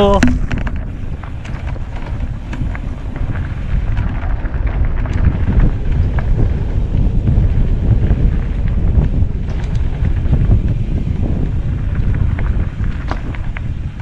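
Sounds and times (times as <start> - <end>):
bike clicks and rattles: 0.0 - 14.0
tyres rolling over dirt: 0.0 - 14.0
wind buffeting microphone: 0.0 - 14.0.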